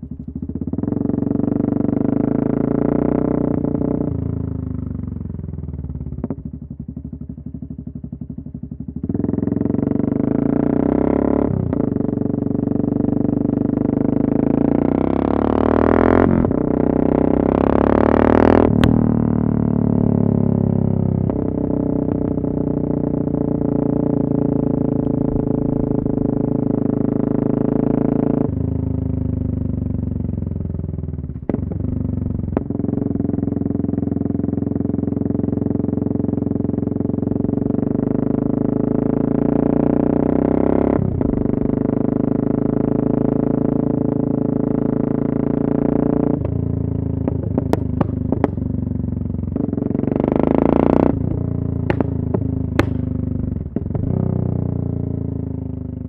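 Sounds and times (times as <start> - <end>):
loud motorcycle engine revving: 9.0 - 30.3, 31.4 - 55.6
exhaust cracks: 24.0 - 27.9, 46.4 - 48.9, 51.1 - 54.2.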